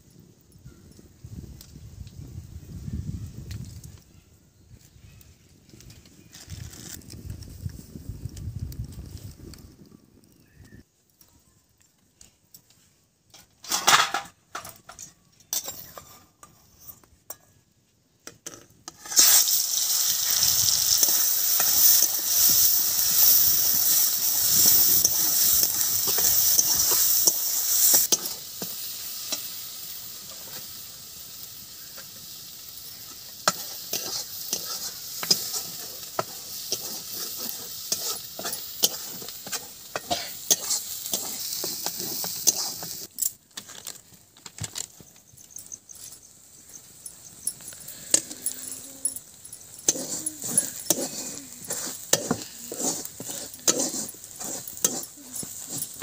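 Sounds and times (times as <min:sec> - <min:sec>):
spatula scraping a steel pan: 0:18.9 - 0:19.4, 0:20.9 - 0:29.5, 0:33.1 - 0:43.1, 0:49.4 - 0:56.0
paste sizzling in hot oil: 0:18.9 - 0:43.2, 0:49.2 - 0:56.0.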